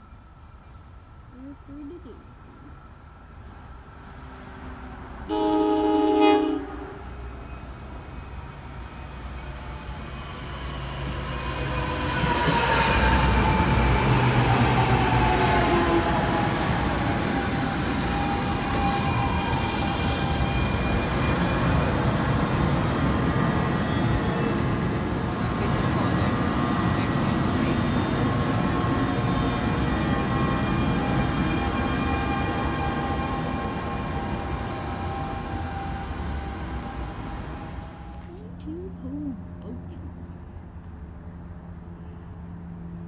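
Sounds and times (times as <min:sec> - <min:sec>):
train cars rumbling past: 0:00.0 - 0:43.0
squealing wheels: 0:17.9 - 0:25.3.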